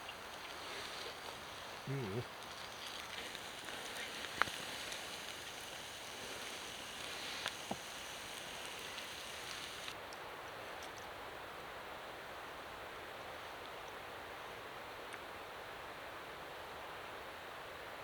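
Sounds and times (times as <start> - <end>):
running water rushing: 0.0 - 10.0.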